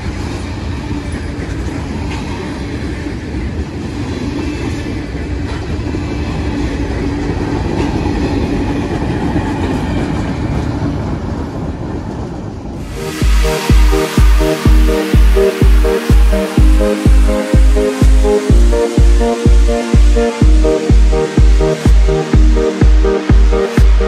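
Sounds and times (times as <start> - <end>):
freight train wheels rumbling on rail: 0.0 - 12.9
electronic dance music: 12.8 - 24.0.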